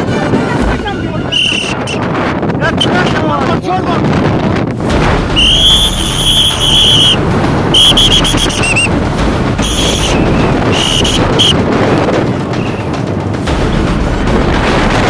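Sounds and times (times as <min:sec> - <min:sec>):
gusty wind on microphone: 0:00.0 - 0:15.0
shrill whistle blasts: 0:01.3 - 0:02.0, 0:05.4 - 0:08.9, 0:09.6 - 0:11.6.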